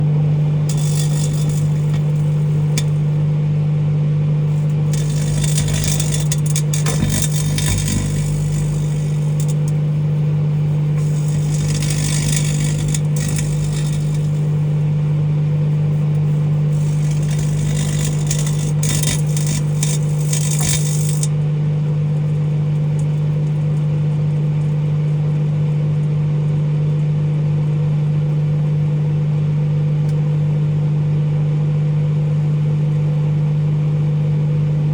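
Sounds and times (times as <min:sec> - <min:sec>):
microwave oven humming: 0:00.0 - 0:34.9
crackling sparks arcing: 0:00.4 - 0:03.8, 0:04.4 - 0:21.5.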